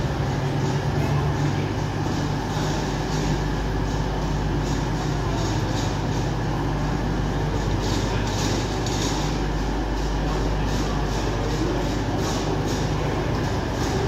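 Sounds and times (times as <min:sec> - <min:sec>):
train engine drone: 0:00.0 - 0:14.0
train wheel rumble: 0:00.0 - 0:14.0
wheels clattering on track: 0:00.0 - 0:14.0.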